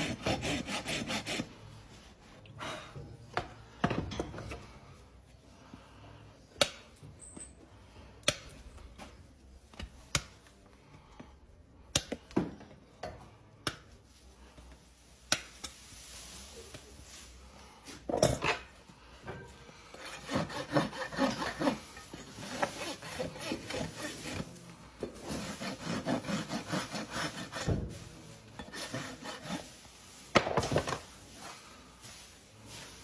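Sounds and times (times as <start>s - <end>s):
hand tools scraping hoof: 0.0s - 1.6s, 19.9s - 27.8s, 28.6s - 29.8s.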